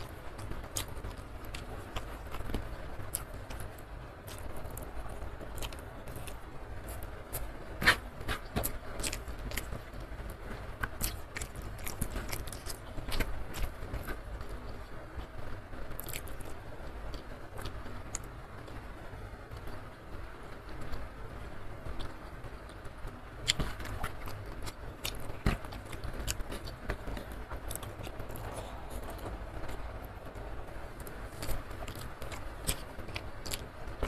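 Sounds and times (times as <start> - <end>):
chewing and mouth sounds: 0.0 - 10.0, 10.8 - 15.3, 15.9 - 18.8, 23.4 - 29.8, 31.0 - 34.0.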